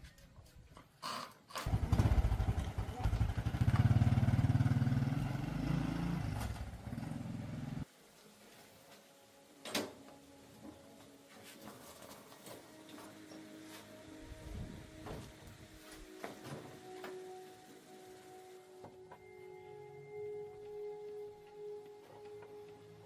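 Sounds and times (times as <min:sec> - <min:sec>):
motorcycle engine running: 0:01.6 - 0:07.8.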